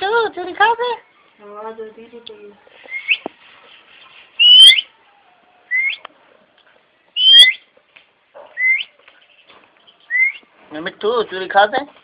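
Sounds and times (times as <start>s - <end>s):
parrot whistled screeches: 4.4s - 4.9s, 7.2s - 7.6s, 8.6s - 8.9s, 10.1s - 10.4s.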